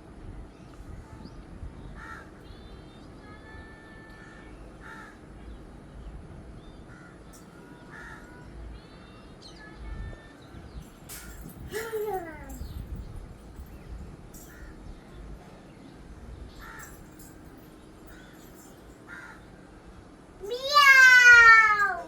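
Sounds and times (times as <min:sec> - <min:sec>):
low outdoor rumble: 0:00.0 - 0:22.0
crows cawing: 0:16.6 - 0:17.0, 0:19.1 - 0:19.4.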